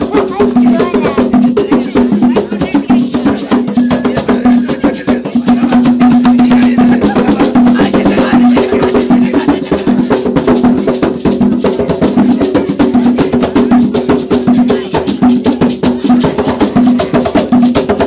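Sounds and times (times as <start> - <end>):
fast hand drumming: 0.0 - 18.0.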